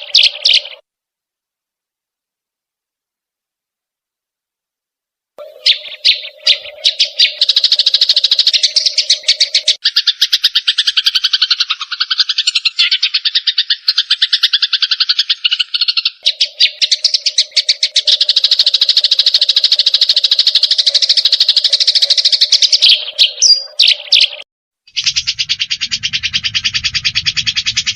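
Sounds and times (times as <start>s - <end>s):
birds chattering trills: 0.0s - 0.8s, 5.4s - 27.9s
low rattling trill: 25.0s - 27.9s
steady low hum: 25.1s - 27.9s.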